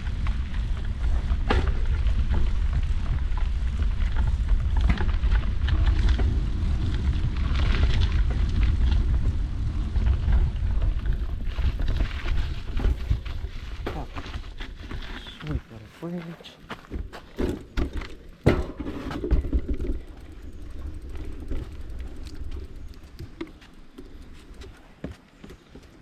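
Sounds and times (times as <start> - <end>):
wind buffeting microphone: 0.0 - 15.2
bike clicks and rattles: 0.0 - 15.5, 16.7 - 26.0
low rumble: 0.0 - 15.8.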